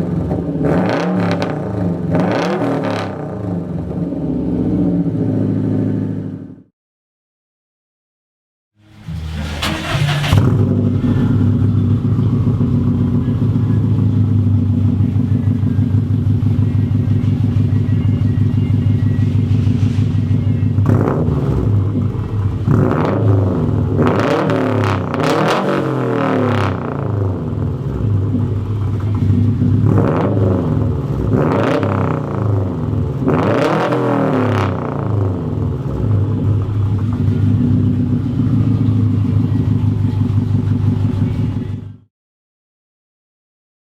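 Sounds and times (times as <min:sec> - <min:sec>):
car exhaust idling loudly: 0:08.8 - 0:33.6, 0:34.2 - 0:42.0
engine throttle blips: 0:08.8 - 0:42.1.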